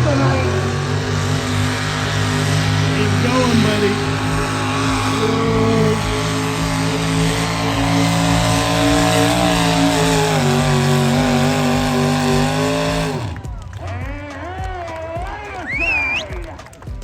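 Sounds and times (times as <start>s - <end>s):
vehicle engine running hard: 0.0s - 16.9s.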